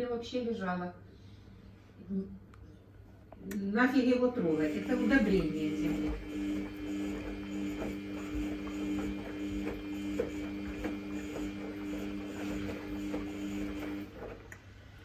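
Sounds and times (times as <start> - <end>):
washing machine motor whine: 3.9 - 14.5
laundry and water tumbling: 4.5 - 14.4.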